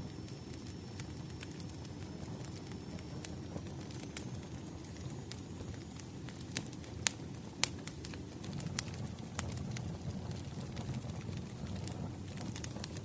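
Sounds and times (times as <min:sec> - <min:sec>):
rumble of flames: 0:00.0 - 0:13.0
wood fire pops and snaps: 0:00.0 - 0:13.0.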